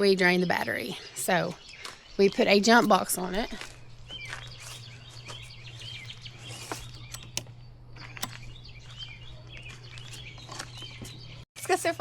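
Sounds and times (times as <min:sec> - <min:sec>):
small birds chirping: 0:00.0 - 0:12.0
steady low hum: 0:02.6 - 0:11.4
sharp clicks: 0:06.7 - 0:08.4.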